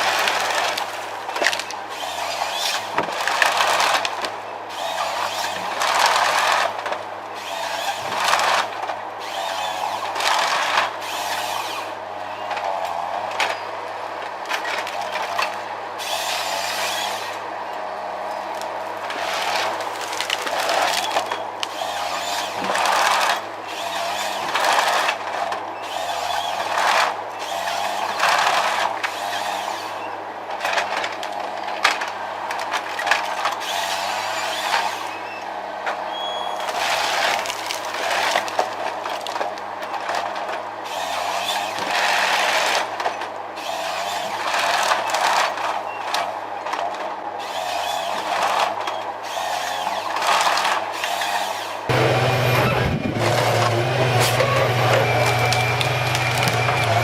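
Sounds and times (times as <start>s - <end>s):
machinery engine hum: 8.0s - 23.7s, 51.8s - 57.0s
loud rough bursts: 51.9s - 57.0s.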